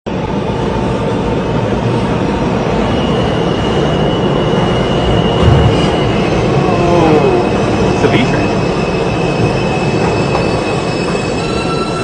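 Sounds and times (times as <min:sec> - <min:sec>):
subway train rumble: 0:00.1 - 0:12.0
low thump: 0:05.4 - 0:06.1.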